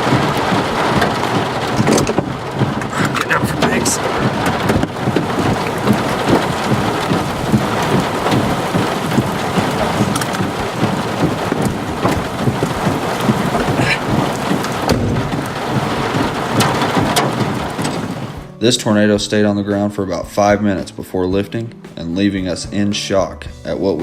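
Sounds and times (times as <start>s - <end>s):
rain: 0.0s - 18.5s
wind: 0.0s - 18.5s.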